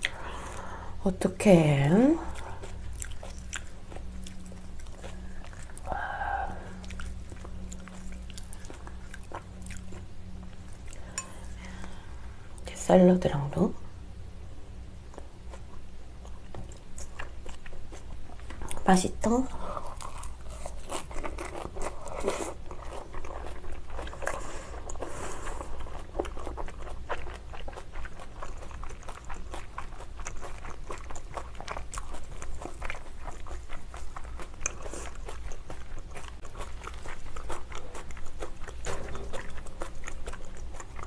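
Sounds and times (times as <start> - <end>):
wet mouth chewing sounds: 2.2 - 12.0, 19.6 - 41.0.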